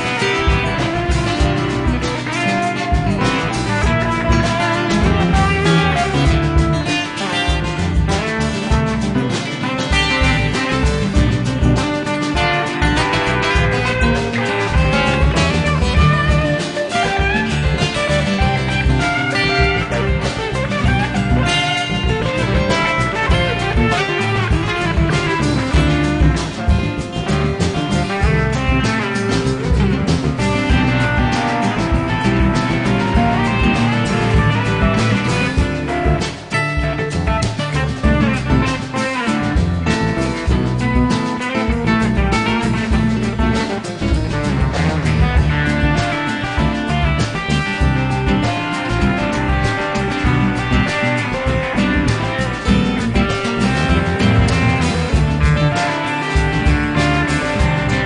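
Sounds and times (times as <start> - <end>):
drums: 0.0 - 58.0
electric guitar band music: 0.0 - 58.0.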